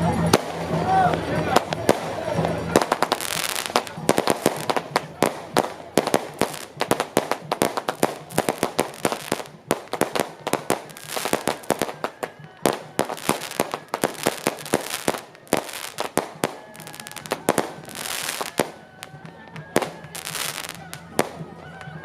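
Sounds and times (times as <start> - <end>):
firecrackers banging: 0.0 - 22.0.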